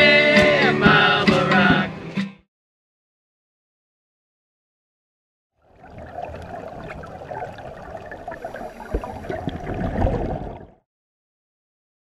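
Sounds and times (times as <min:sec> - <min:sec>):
crackling bubbles: 0:05.6 - 0:10.8
underwater wash of water: 0:05.6 - 0:10.8.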